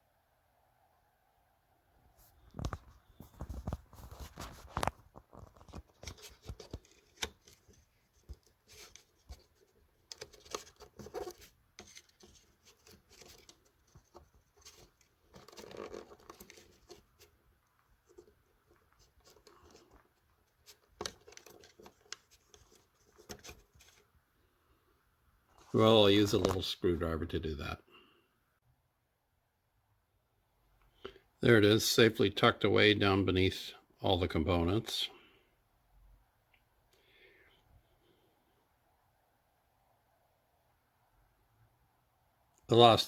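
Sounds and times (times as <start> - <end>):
faint clicks and taps: 2.4 - 24.1.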